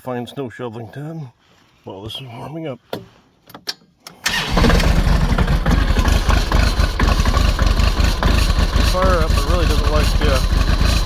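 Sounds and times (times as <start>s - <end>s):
diesel tractor engine starting and idling: 4.1s - 11.0s.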